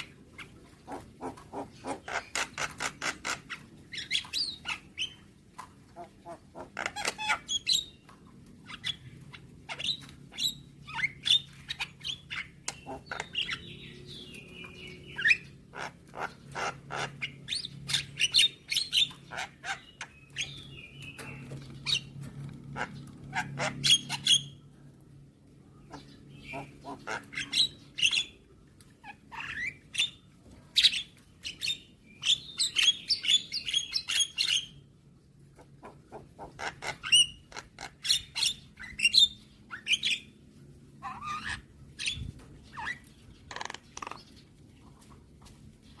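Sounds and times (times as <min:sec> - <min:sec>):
myna clicking and chattering calls: 0:00.0 - 0:13.7, 0:25.9 - 0:30.1, 0:42.8 - 0:44.4
harsh squeaky bird calls: 0:25.9 - 0:28.4, 0:41.0 - 0:44.4.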